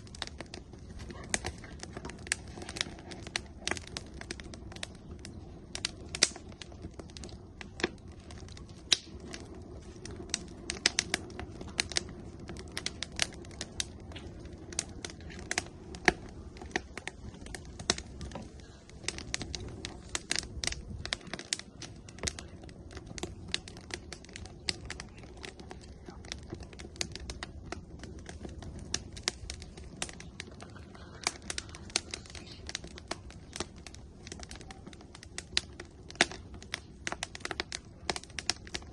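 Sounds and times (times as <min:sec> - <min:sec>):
firewood crackling and popping: 0:00.0 - 0:38.9
low rush of flame: 0:00.0 - 0:38.9.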